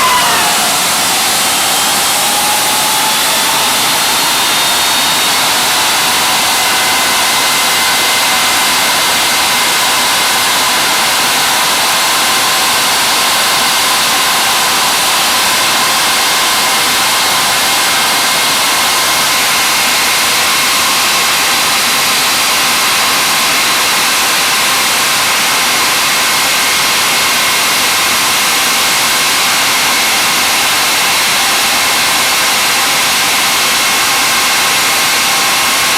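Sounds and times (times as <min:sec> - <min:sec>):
jet engines roaring: 0:00.0 - 0:19.4.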